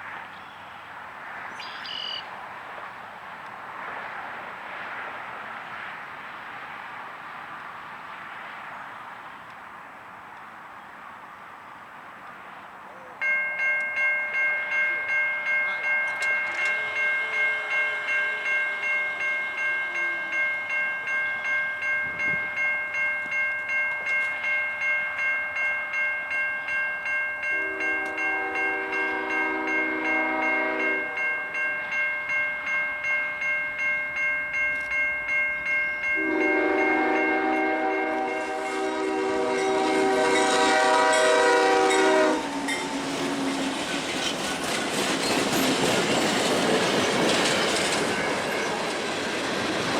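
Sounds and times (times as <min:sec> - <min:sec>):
crossing bell ringing: 0:13.2 - 0:49.9
locomotive air horn: 0:16.5 - 0:20.4, 0:27.5 - 0:31.4, 0:36.2 - 0:43.8.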